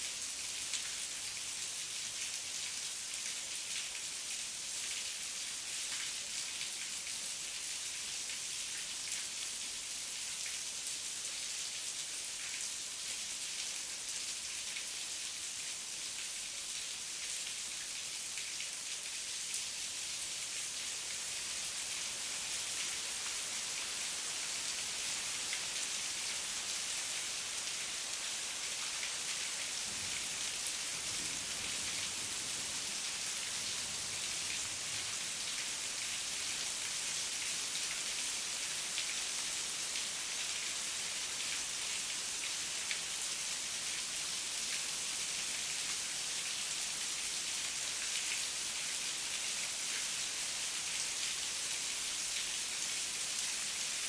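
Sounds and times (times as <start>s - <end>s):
heavy rain hiss: 22.4s - 40.4s.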